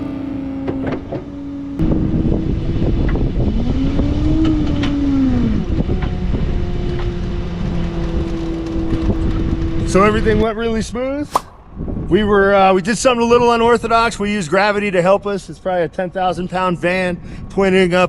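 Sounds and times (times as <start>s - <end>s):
vehicle engine revving: 0.0s - 10.4s
loud rough rumble: 0.0s - 12.4s.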